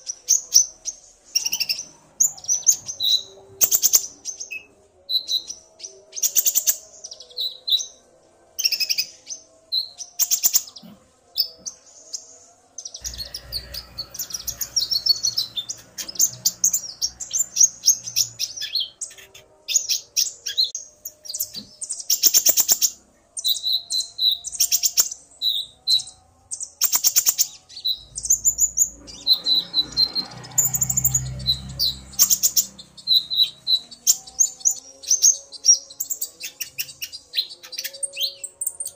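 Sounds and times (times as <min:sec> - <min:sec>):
sunbirds chirping and trilling: 0:00.0 - 0:38.9
low rumble: 0:27.9 - 0:33.4.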